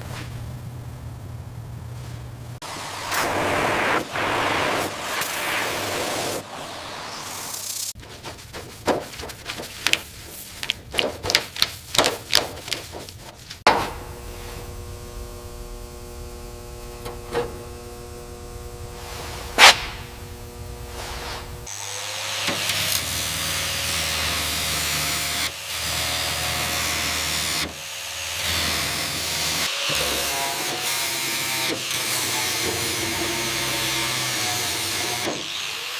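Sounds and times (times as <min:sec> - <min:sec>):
hissing power tool: 0:02.6 - 0:08.0, 0:13.9 - 0:35.9
machine humming: 0:13.7 - 0:22.0.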